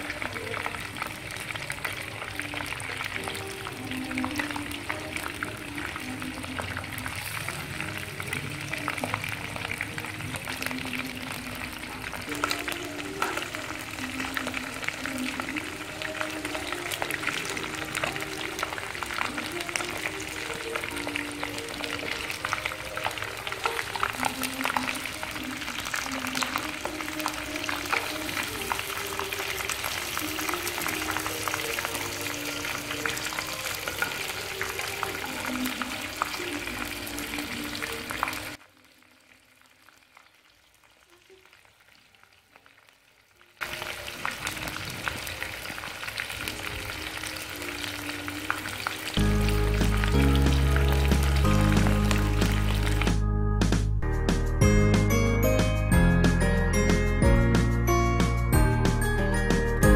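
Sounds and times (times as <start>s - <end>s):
chicken sizzling in oil: 0.0s - 53.2s
simple background melody: 46.5s - 59.9s.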